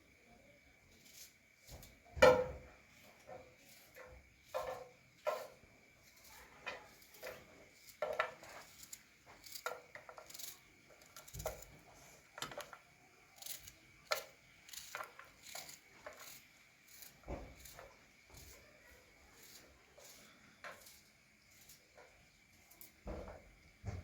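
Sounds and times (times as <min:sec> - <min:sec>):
small objects clicking and rubbing: 0:03.1 - 0:23.0.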